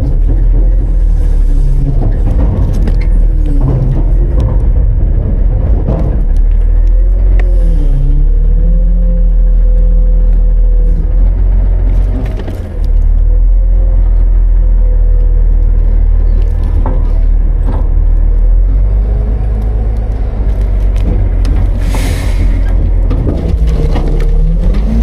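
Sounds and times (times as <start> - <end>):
sharp knocks and clanks: 0.0 - 6.8, 20.5 - 25.0
garbage truck engine whining: 0.0 - 25.0.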